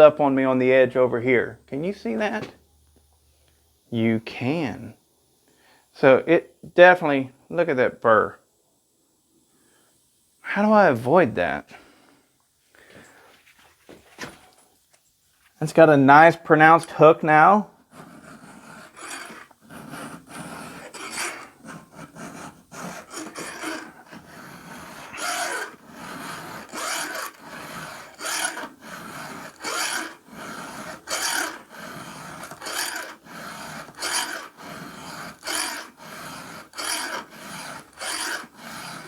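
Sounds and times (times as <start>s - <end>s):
file rasping on chainsaw chain: 16.6s - 39.0s.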